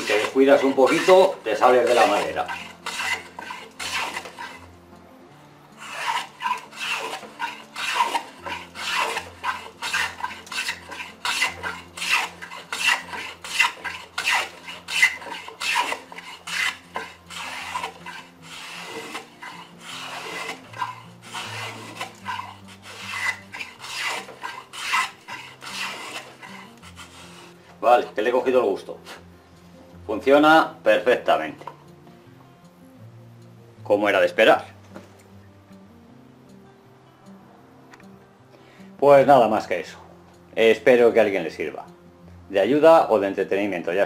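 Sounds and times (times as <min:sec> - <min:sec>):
hand plane shaving wood: 0:00.0 - 0:04.7, 0:05.8 - 0:28.4.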